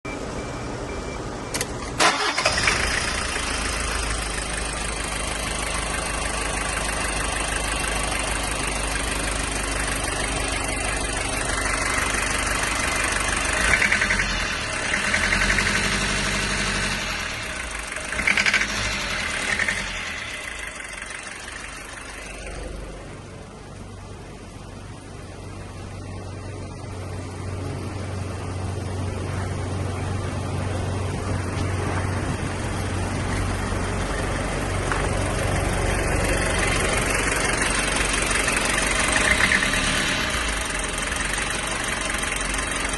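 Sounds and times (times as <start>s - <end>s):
diesel engine cranking and starting: 1.4s - 42.9s
diesel engine knocking: 31.6s - 42.9s.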